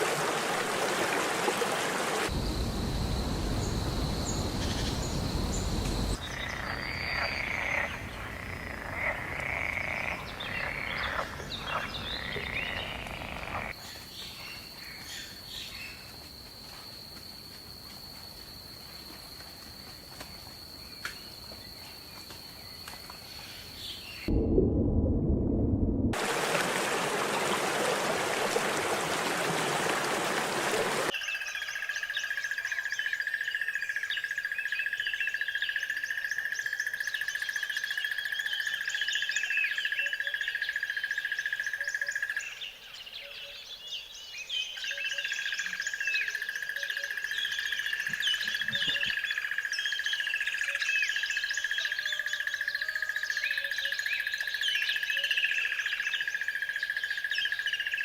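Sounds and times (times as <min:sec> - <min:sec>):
small birds chirping: 0:02.3 - 0:16.0
rushing noise: 0:24.3 - 0:31.1.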